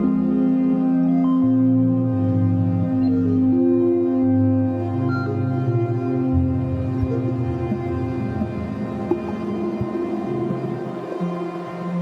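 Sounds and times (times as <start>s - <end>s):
ambient drone music: 0.0s - 12.0s.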